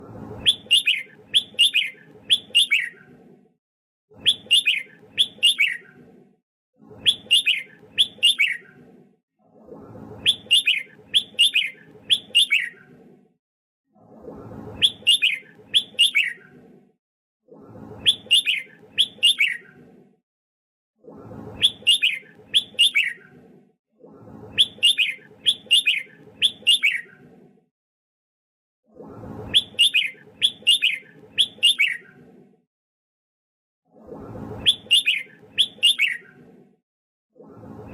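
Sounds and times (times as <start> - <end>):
bird singing downward notes: 0.4 - 3.0, 4.2 - 5.9, 7.0 - 8.7, 10.2 - 12.8, 14.8 - 16.4, 18.0 - 19.7, 21.6 - 23.2, 24.6 - 27.1, 29.5 - 32.0, 34.6 - 36.3.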